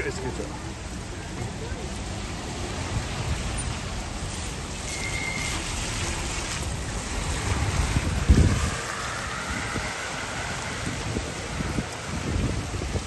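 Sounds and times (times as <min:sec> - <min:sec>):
heavy rain falling: 0:00.0 - 0:13.0
wind buffeting microphone: 0:05.5 - 0:13.0.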